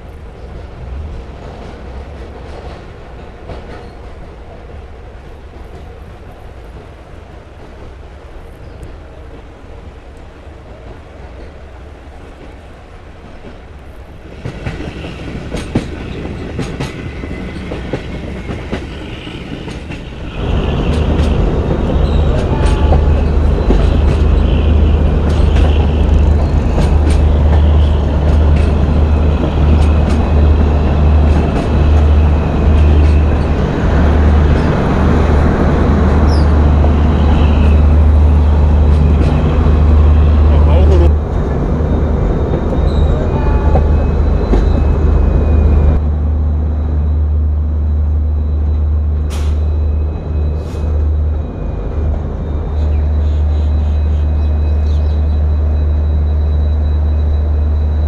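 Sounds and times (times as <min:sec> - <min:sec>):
train wheels clicking over rail joints: 0:14.3 - 0:20.2, 0:20.8 - 0:35.4.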